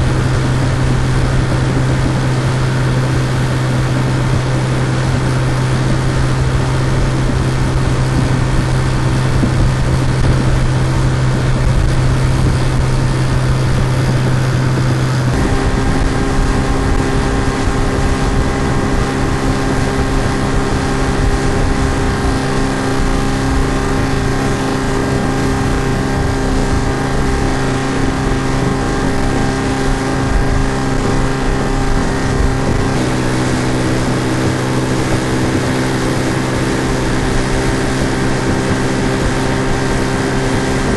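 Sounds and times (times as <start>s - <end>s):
outboard motor running: 0.0s - 40.9s.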